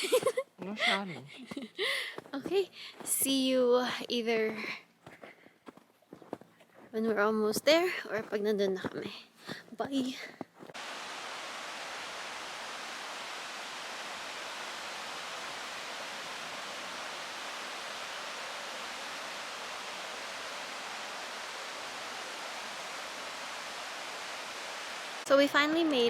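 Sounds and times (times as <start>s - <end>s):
waterfall rushing: 10.8s - 26.0s.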